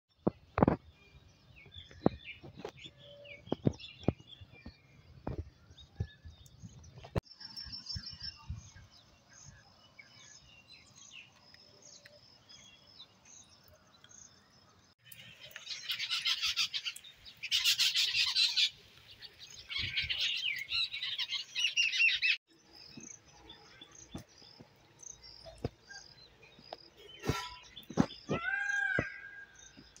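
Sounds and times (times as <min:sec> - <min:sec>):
songbirds chirping: 0:00.2 - 0:30.0.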